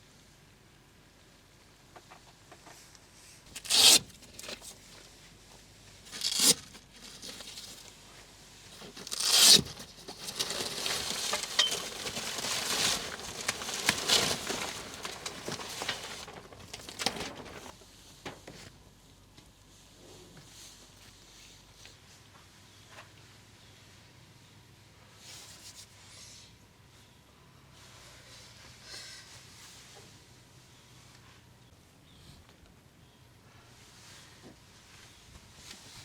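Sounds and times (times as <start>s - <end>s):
material ripping: 3.5s - 4.7s, 6.1s - 7.8s, 8.8s - 17.7s
material crinkling and rustling: 6.1s - 18.7s.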